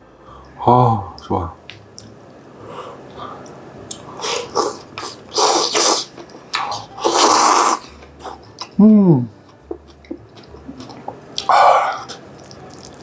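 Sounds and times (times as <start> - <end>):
close-miked crunchy eating: 9.4 - 13.0.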